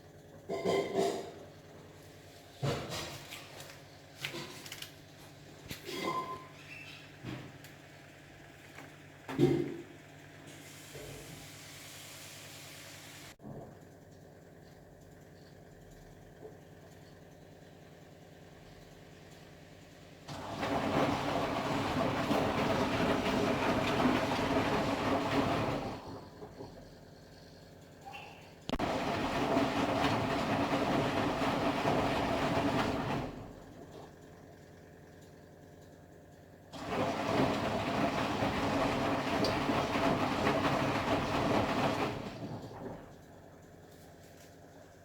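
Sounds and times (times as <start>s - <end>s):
laundry and water sloshing: 20.2s - 26.8s, 28.0s - 34.2s, 36.7s - 45.0s
washing machine drum tumbling: 20.2s - 27.0s, 28.7s - 34.2s, 36.8s - 43.2s.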